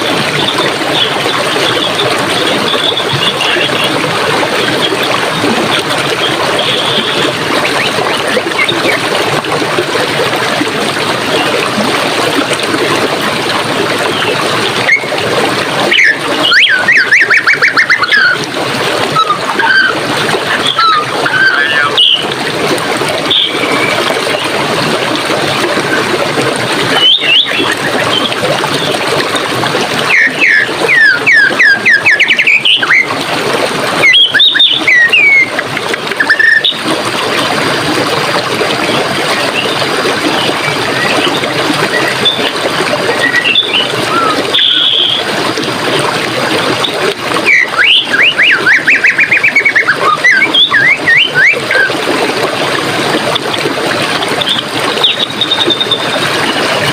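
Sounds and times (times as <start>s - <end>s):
stream water rushing: 0.0s - 56.9s
songbirds trilling: 15.9s - 18.4s, 19.2s - 22.4s, 23.2s - 24.5s, 26.9s - 29.0s, 30.0s - 33.1s, 34.1s - 35.6s, 43.3s - 45.3s, 47.5s - 51.9s.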